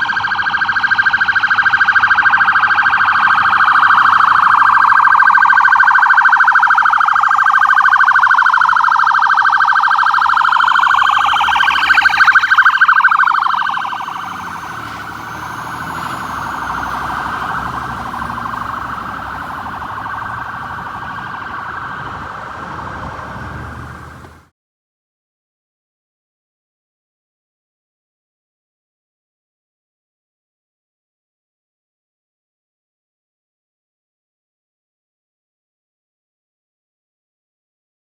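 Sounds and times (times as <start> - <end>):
electronic sirens wailing: 0.0 - 24.5.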